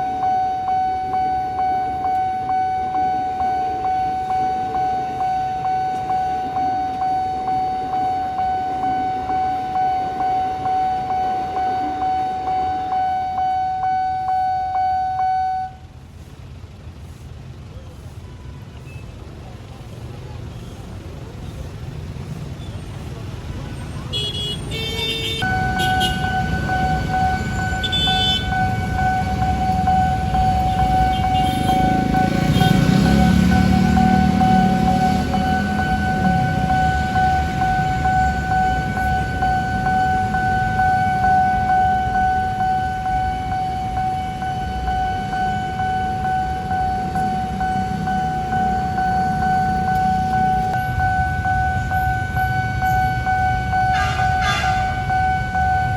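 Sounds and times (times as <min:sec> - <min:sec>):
railroad crossing bell ringing: 0:00.0 - 0:15.9, 0:24.7 - 0:55.9
train rumble: 0:24.7 - 0:55.9.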